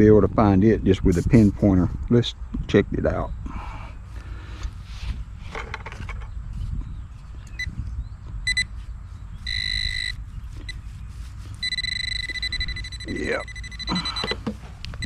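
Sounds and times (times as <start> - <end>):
metal detector beeping: 8.4 - 8.7, 9.4 - 10.8, 11.6 - 15.0.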